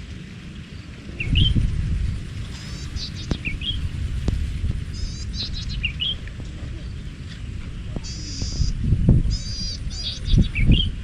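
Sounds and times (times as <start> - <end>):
wind rumble on microphone: 0.0 - 11.0
bird rising call: 0.8 - 4.0
quick bird trills: 8.0 - 11.0.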